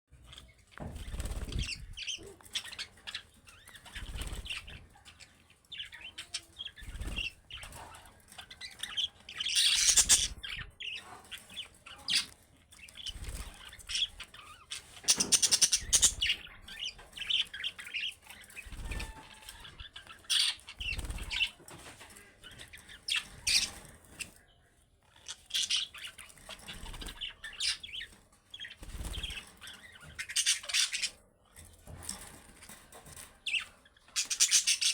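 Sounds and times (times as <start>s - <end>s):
budgerigars chirping: 5.8s - 21.6s, 22.6s - 24.4s, 25.2s - 31.2s, 33.5s - 34.9s.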